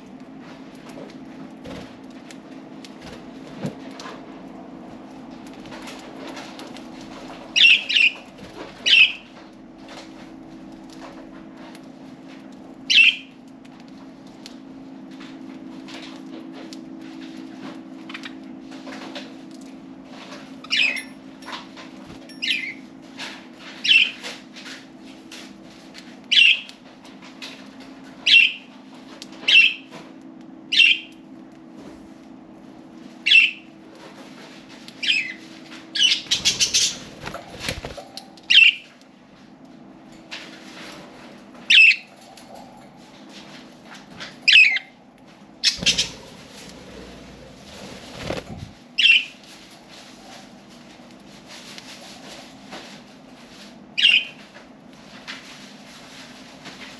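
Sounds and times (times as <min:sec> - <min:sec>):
budgerigars chirping: 0:36.0 - 0:37.0, 0:45.6 - 0:46.2
bird wingbeats: 0:36.1 - 0:38.3, 0:45.6 - 0:49.2.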